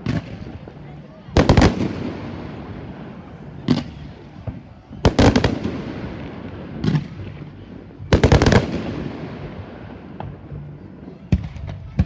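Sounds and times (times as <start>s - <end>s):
fireworks banging: 0.0s - 12.0s.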